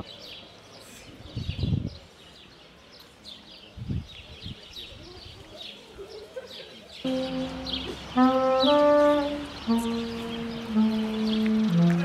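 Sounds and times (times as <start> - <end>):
small birds chirping: 0.0 - 12.0
people's voices: 4.2 - 12.0.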